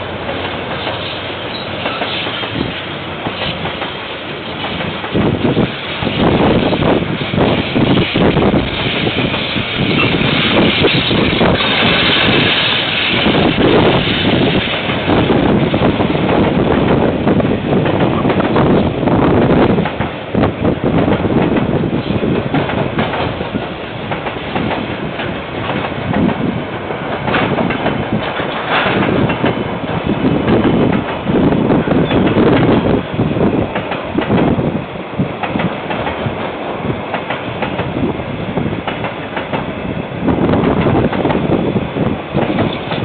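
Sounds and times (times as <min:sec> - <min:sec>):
train wheels clacking over joints: 0:00.2 - 0:06.8, 0:21.0 - 0:34.6, 0:35.3 - 0:38.0, 0:38.8 - 0:39.8, 0:42.4 - 0:43.0.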